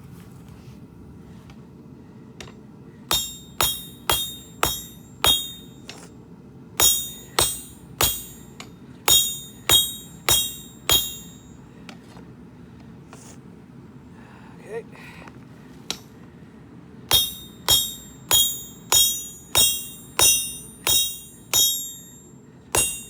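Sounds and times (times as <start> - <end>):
hammer striking steel on anvil: 3.1 - 6.1, 6.8 - 11.6, 17.1 - 23.0.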